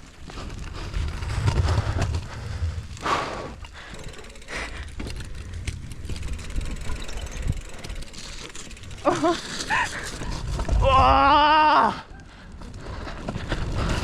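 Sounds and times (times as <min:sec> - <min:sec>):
wind rumble on microphone: 0:00.0 - 0:08.2, 0:09.7 - 0:14.0
tyres on dirt: 0:00.0 - 0:11.2
bike rattling clicks: 0:00.4 - 0:10.8.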